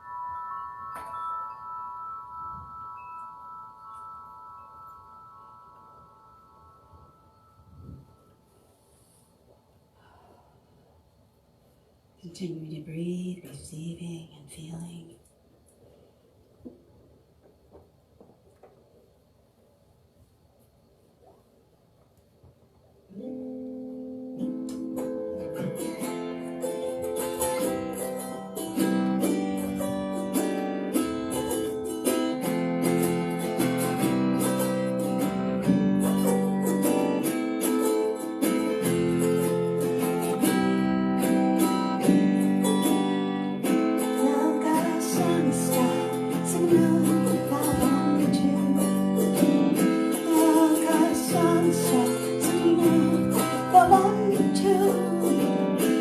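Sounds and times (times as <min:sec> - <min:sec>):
acoustic guitar plucked and strummed: 0:23.1 - 0:56.0.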